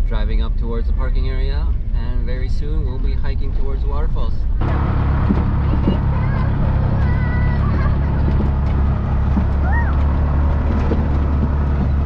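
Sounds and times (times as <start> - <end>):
car engine and road drone: 0.0 - 12.0.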